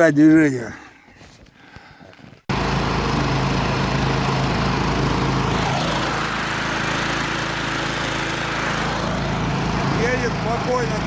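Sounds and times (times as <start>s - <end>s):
vehicle engine running under load: 2.5s - 11.0s.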